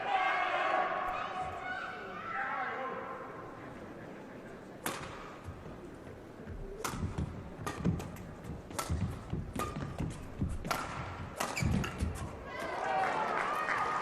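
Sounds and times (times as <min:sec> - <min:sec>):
rackets striking shuttlecock: 0:04.8 - 0:05.4, 0:06.8 - 0:12.3.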